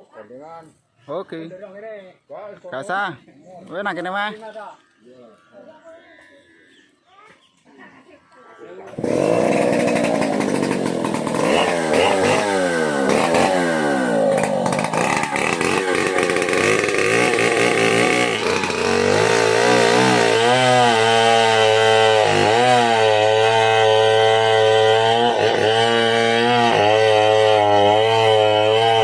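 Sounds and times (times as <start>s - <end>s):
chainsaw revving: 8.8s - 29.0s.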